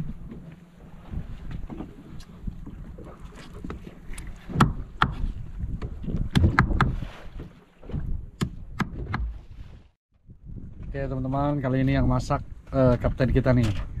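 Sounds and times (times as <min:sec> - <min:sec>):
boat rocking rumble: 0:00.0 - 0:14.0
wind: 0:00.0 - 0:14.0
sharp knocks and clicks: 0:04.1 - 0:07.0, 0:08.4 - 0:09.4.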